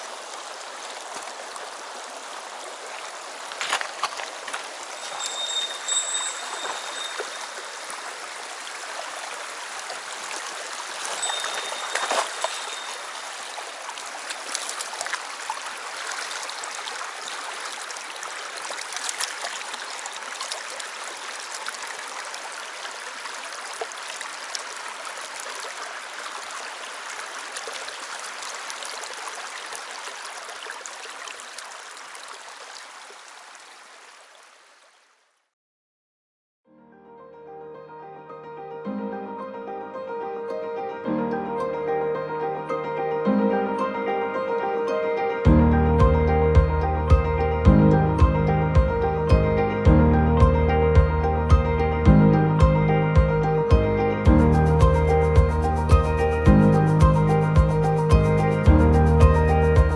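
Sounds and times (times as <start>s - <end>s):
stream rushing over rocks: 0.0s - 35.2s.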